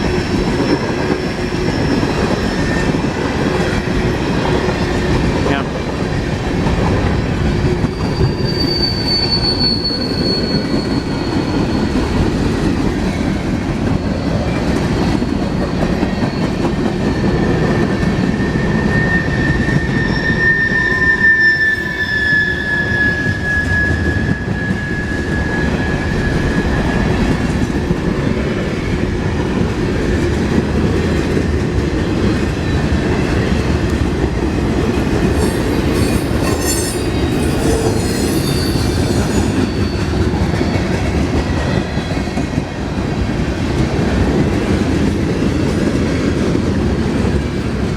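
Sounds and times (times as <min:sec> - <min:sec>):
train wheel squeals: 0:00.0 - 0:29.6, 0:32.0 - 0:46.7
train wheels rumbling on rail: 0:00.0 - 0:47.9.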